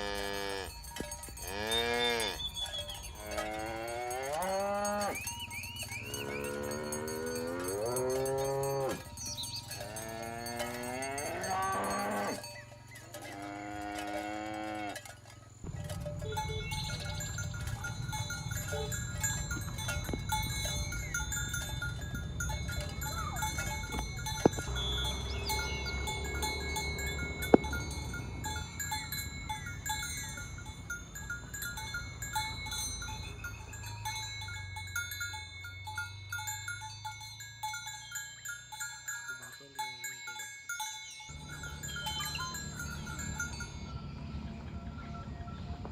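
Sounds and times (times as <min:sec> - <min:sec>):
cattle bells clanking: 0:00.0 - 0:45.9
low rumbling background: 0:15.6 - 0:34.6.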